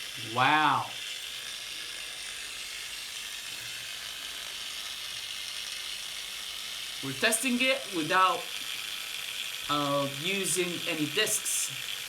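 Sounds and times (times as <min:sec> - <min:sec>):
angle grinder whirring: 0:00.0 - 0:12.0.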